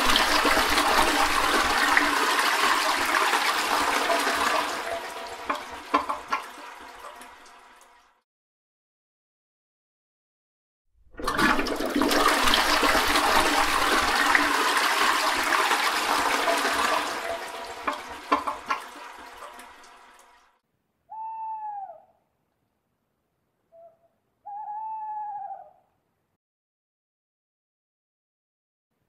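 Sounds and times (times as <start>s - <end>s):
toilet flushing: 0.0s - 8.1s, 11.0s - 20.6s
owl hooting: 21.1s - 22.3s, 23.7s - 25.9s.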